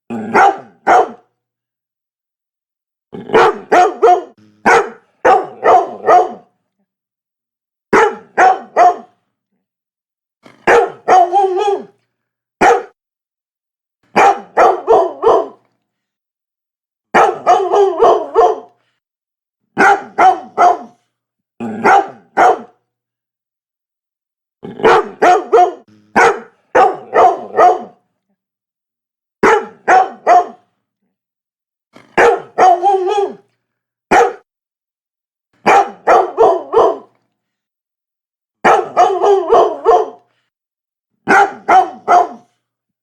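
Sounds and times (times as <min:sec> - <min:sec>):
dog barking: 0:00.2 - 0:01.3, 0:03.2 - 0:06.5, 0:07.9 - 0:09.2, 0:10.5 - 0:11.9, 0:12.6 - 0:13.0, 0:14.1 - 0:15.6, 0:17.1 - 0:18.8, 0:19.8 - 0:21.0, 0:21.6 - 0:22.8, 0:24.7 - 0:28.0, 0:29.4 - 0:30.7, 0:32.0 - 0:33.4, 0:34.1 - 0:34.5, 0:35.6 - 0:37.2, 0:38.6 - 0:40.3, 0:41.2 - 0:42.6.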